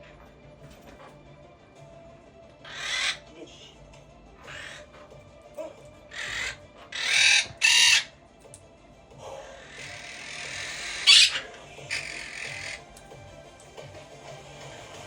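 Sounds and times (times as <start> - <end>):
parrot squawking and whistling: 2.6 - 3.2, 4.4 - 5.0, 6.1 - 8.1, 9.5 - 12.9.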